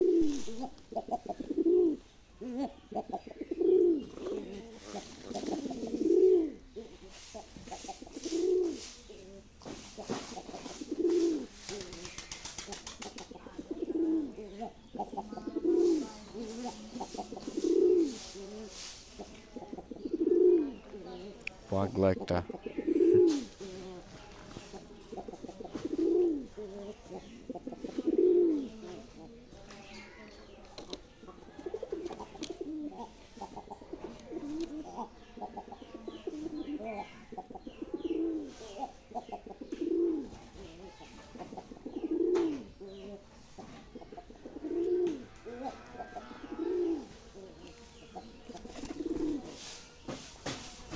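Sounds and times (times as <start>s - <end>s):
pigeon cooing: 0.0s - 50.9s.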